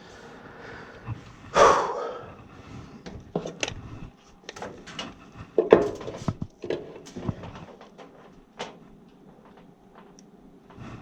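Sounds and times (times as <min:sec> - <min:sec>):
clicks and knocks of tools: 0:04.5 - 0:10.8.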